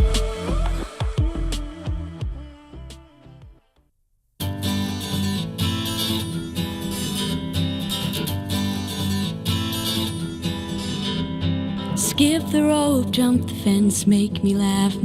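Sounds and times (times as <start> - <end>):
steady beat: 0.0 - 3.6
strummed acoustic guitar: 4.4 - 15.0.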